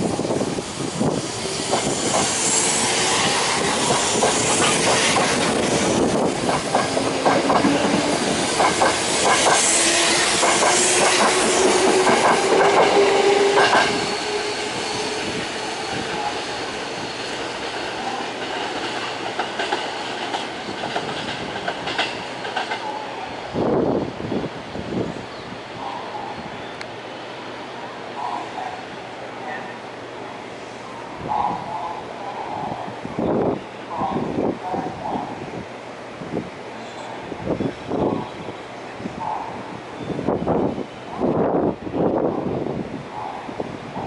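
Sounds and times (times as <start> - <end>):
train motor whine: 0.4 - 17.8
train wheels clacking over rail joints: 1.7 - 2.4, 3.5 - 14.8, 17.1 - 22.9.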